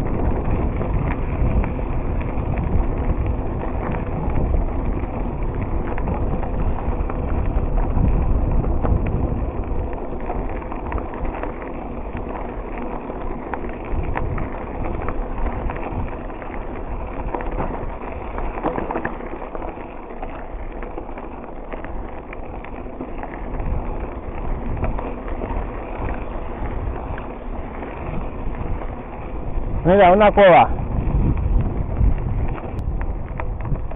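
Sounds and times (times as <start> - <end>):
bicycle tyre noise: 0.0 - 33.9
bike rattles and clicks: 0.0 - 33.9
wind buffeting microphone: 0.0 - 33.9.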